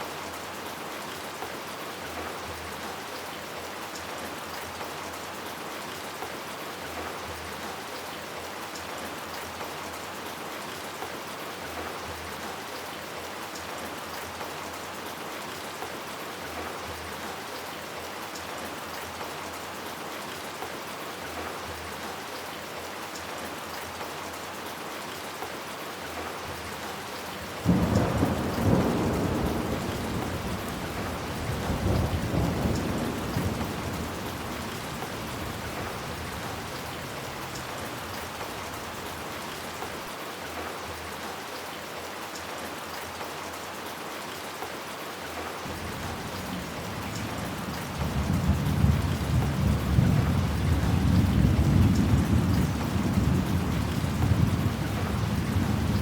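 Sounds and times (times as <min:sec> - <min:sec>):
steady rain falling: 0:00.0 - 0:56.0
thunder clap with rolling rumble: 0:27.6 - 0:37.8, 0:45.7 - 0:56.0.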